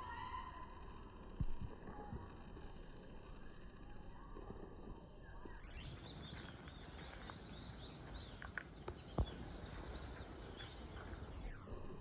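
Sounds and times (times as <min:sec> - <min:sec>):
low outdoor background noise: 0:00.0 - 0:12.0
small birds chirping: 0:02.8 - 0:11.8.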